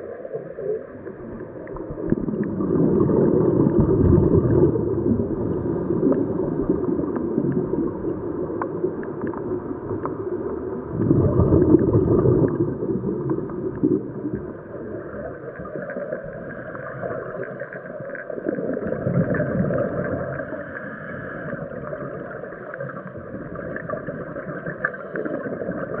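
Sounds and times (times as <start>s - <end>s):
exhaled bubbles gurgling: 0.0s - 26.0s
diver breathing through regulator: 5.3s - 7.0s, 12.5s - 13.9s, 16.2s - 18.0s, 20.2s - 21.8s.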